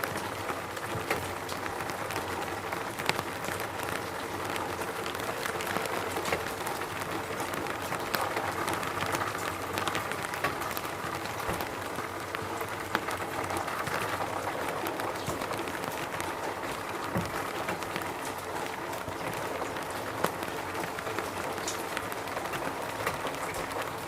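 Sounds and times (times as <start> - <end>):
rain hissing: 0.0 - 24.0
raindrops ticking: 0.0 - 24.0.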